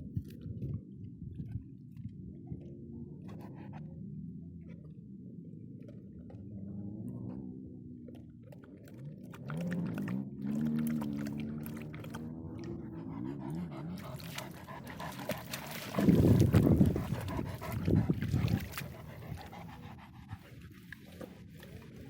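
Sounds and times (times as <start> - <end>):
dog panting: 12.6 - 22.0.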